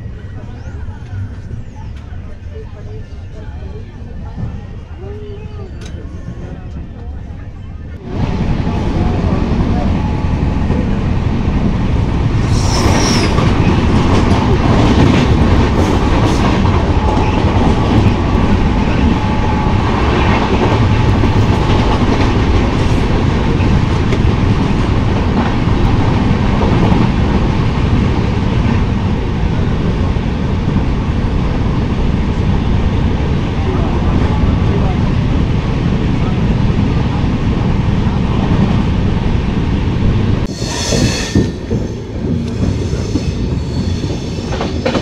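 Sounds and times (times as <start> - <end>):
train wheels rumbling and clattering: 0.0 - 45.0
high-pitched squeal: 40.5 - 44.8.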